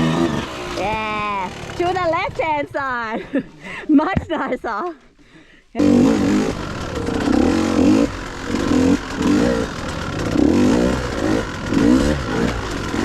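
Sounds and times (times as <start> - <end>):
dirt bike engine revving: 0.0 - 2.4, 5.8 - 13.0.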